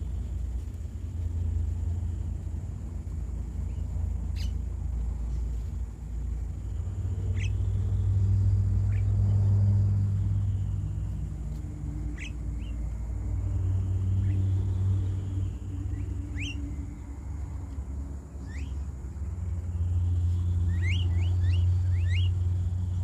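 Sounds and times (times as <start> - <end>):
low engine drone: 0.0 - 23.0
high bird chirps: 3.7 - 4.6, 7.2 - 7.9, 15.9 - 17.1, 18.4 - 18.9, 20.3 - 22.4.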